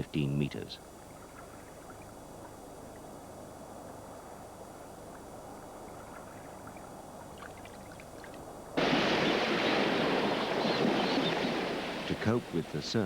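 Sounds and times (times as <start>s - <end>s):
faint low water ambience: 0.0s - 13.0s
ocean surf breaking: 8.8s - 13.0s.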